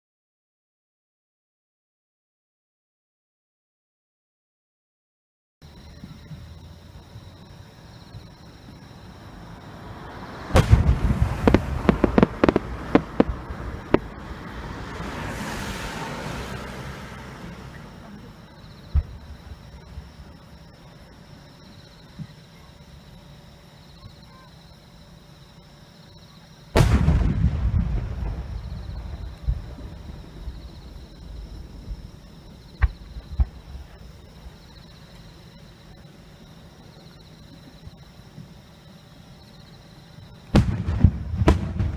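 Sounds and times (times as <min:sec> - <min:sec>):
insects chirping: 0:05.6 - 0:41.9
fireworks bangs: 0:09.8 - 0:20.4, 0:26.7 - 0:34.6, 0:40.5 - 0:41.9
firework burst rumble: 0:10.0 - 0:20.4, 0:26.7 - 0:34.7, 0:40.5 - 0:41.9.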